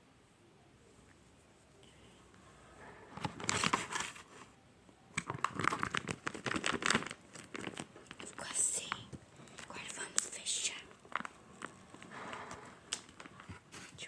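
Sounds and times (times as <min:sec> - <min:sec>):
plastic crinkling and crackling: 0:02.8 - 0:04.5, 0:05.1 - 0:14.0.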